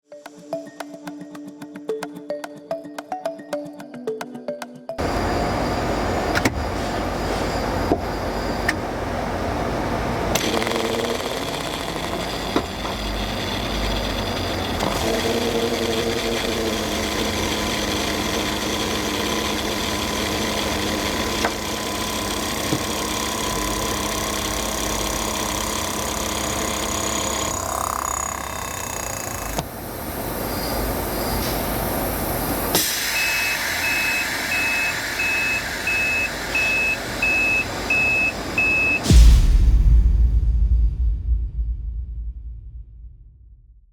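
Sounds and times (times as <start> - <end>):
compressor hum and whine: 5.0 - 39.2
repeated beep: 33.1 - 39.1.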